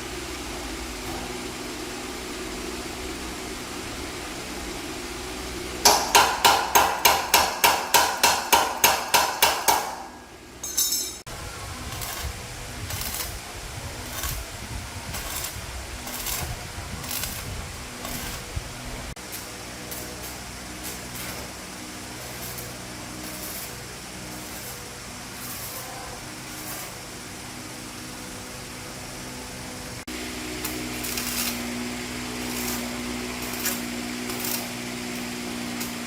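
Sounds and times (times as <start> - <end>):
hammer striking metal: 5.8 - 11.3.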